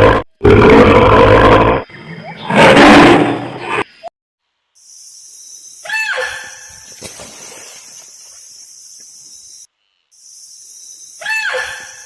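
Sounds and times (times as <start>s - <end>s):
steady high-pitched hiss: 4.4s - 5.9s, 6.6s - 11.2s
animal call with falling pitch: 11.2s - 12.0s.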